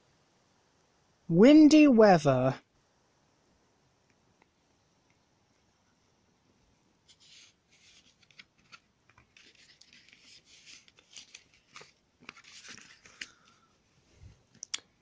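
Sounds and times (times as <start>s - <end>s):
paper pages rustling: 7.1s - 13.7s.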